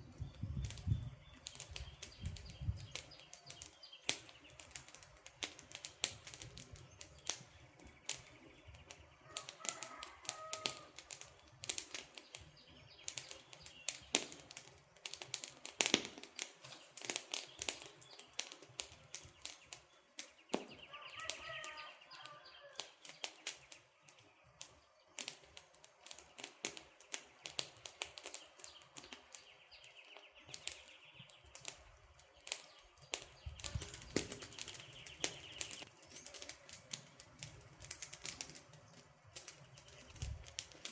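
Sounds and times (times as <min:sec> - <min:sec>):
campfire crackling: 0:00.0 - 0:40.9.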